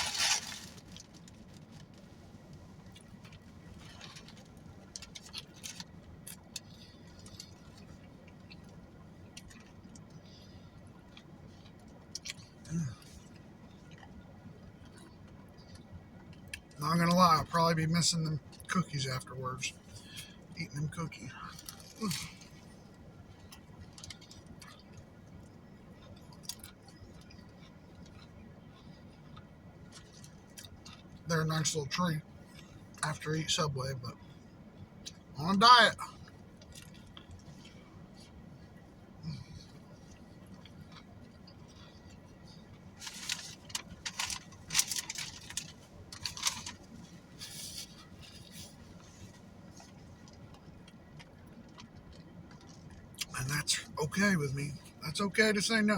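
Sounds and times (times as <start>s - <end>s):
wrapping rustling and crinkling: 0.0s - 8.0s, 23.3s - 24.9s, 42.8s - 50.6s
faint chewing: 0.0s - 16.8s, 21.4s - 31.3s, 36.0s - 53.5s
low steady background: 0.0s - 55.9s.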